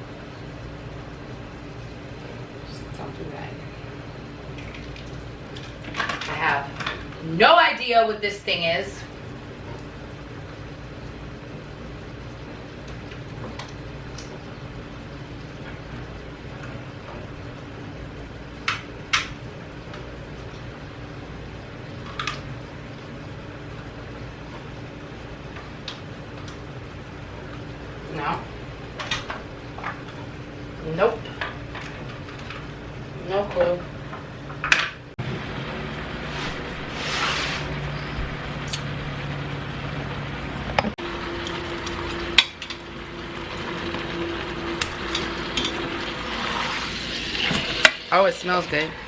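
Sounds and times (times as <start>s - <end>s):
steady low hum: 0.0s - 49.0s
chicken sizzling in a pot: 41.1s - 48.2s.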